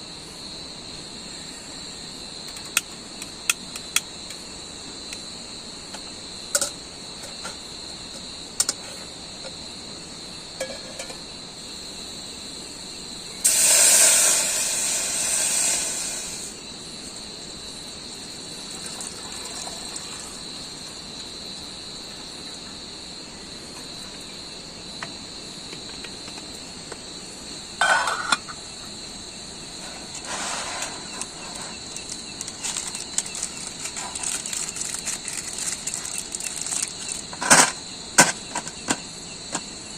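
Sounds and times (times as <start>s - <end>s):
insects chirring: 0.0s - 39.9s
loud hiss: 13.3s - 16.8s, 29.8s - 33.9s
rustling: 30.1s - 37.3s.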